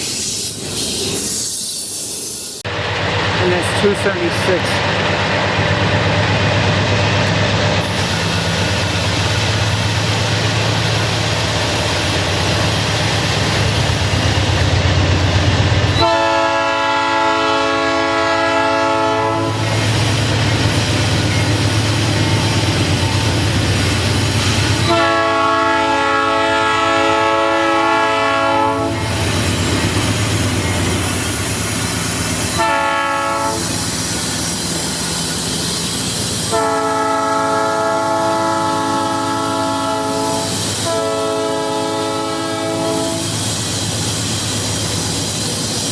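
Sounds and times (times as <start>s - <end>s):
train engine and wheels rumbling: 0.0s - 45.9s
train air horn chord: 16.0s - 19.6s, 24.8s - 29.0s, 32.5s - 33.7s, 36.5s - 43.3s.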